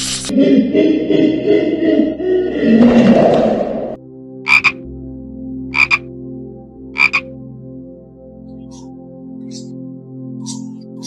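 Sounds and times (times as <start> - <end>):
held music drone: 8.2 - 11.0.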